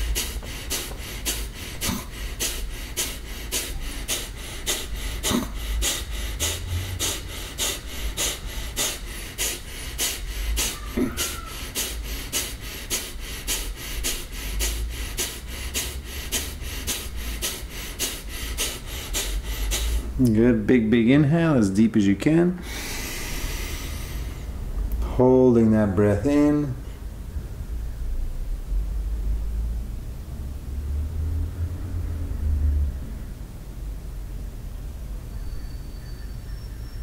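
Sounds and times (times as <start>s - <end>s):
forceful puffs of breath: 0.0s - 20.2s, 22.6s - 24.7s.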